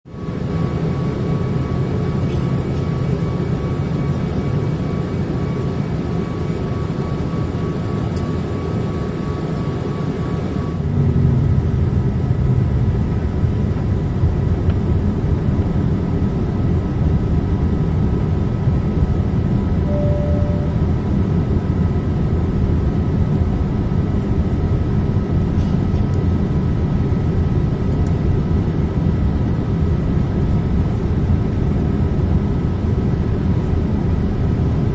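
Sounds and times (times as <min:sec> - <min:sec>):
airplane cabin roar: 0:00.1 - 0:34.9
faint steady tones: 0:19.8 - 0:21.2.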